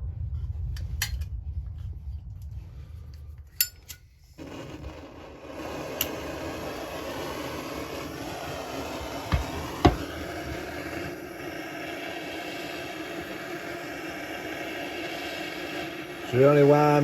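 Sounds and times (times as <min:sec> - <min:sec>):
steady rushing hiss: 0:04.4 - 0:17.0.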